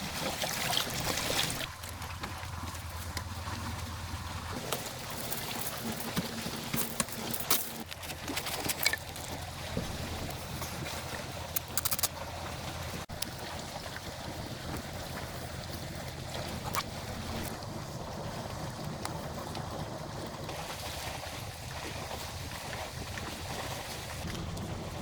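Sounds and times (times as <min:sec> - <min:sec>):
wind buffeting microphone: 0:09.5 - 0:11.6.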